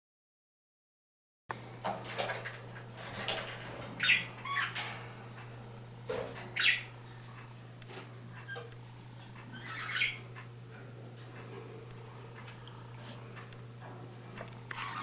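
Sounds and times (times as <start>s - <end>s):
steady low hum: 1.5s - 15.0s
birds chirping: 3.2s - 7.8s, 8.4s - 15.0s.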